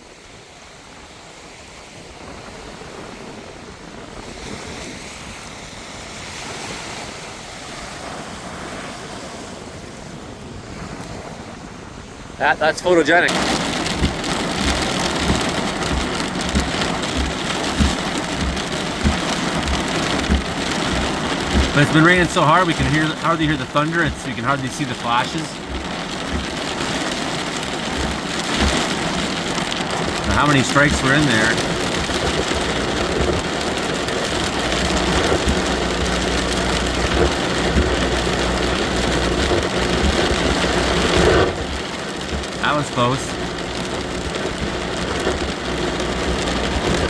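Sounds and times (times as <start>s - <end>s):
heavy rain drumming on a vehicle: 0.1s - 47.0s
low thumps: 13.3s - 42.6s
low steady rumble: 13.3s - 47.0s.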